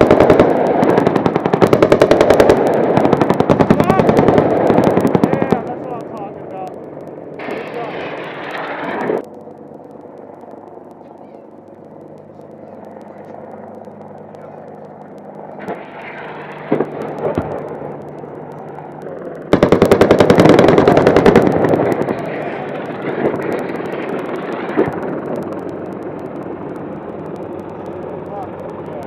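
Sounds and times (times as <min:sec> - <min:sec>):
automatic cannon fire: 0:00.0 - 0:05.9, 0:07.4 - 0:09.2, 0:15.5 - 0:18.0, 0:19.5 - 0:25.9
helicopter humming: 0:00.0 - 0:29.0.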